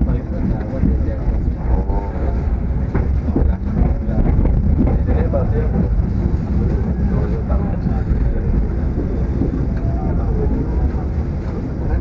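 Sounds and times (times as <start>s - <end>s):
train rumbling: 0.0s - 12.0s
wind buffeting microphone: 0.0s - 12.0s.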